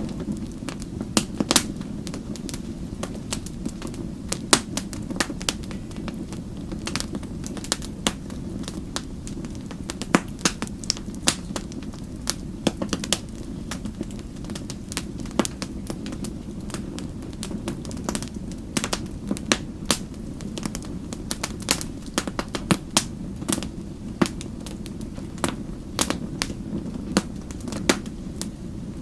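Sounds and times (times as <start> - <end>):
low rumble of burning fire: 0.0 - 29.0
wood fire pops and snaps: 0.0 - 29.0.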